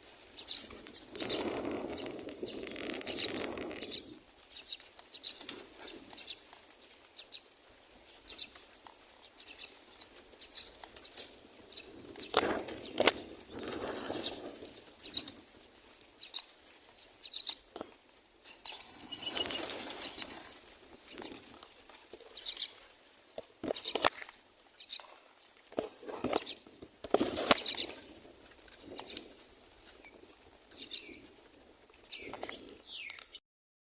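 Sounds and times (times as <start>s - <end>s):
rustling: 0.0s - 33.4s
nestlings begging chirps: 0.4s - 5.5s, 18.5s - 21.5s, 23.6s - 24.1s.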